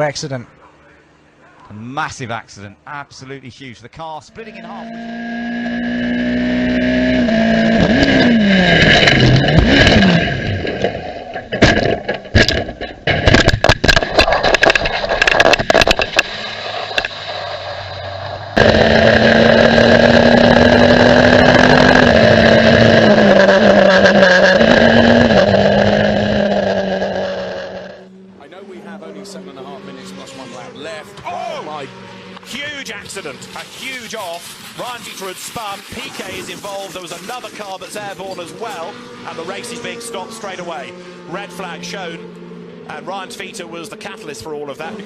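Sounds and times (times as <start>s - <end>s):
race car engines at high revs: 4.2s - 45.0s
car crash impacts: 7.8s - 18.4s
crackling debris: 8.7s - 22.0s, 32.5s - 38.4s.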